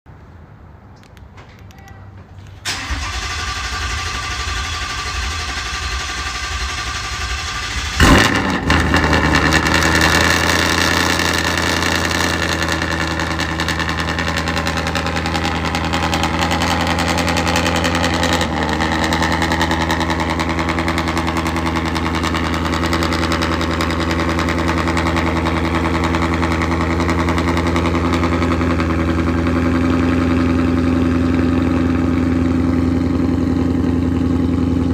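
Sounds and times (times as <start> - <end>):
engine starter cranking: 2.6 - 8.6
engine idling: 2.6 - 34.9.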